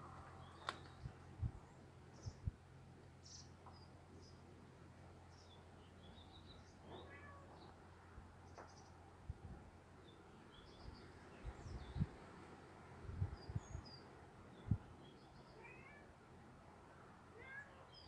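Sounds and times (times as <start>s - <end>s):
songbird chirps and twittering: 0.0s - 9.1s, 10.0s - 12.4s, 13.2s - 15.8s
low steady hum: 0.0s - 15.5s.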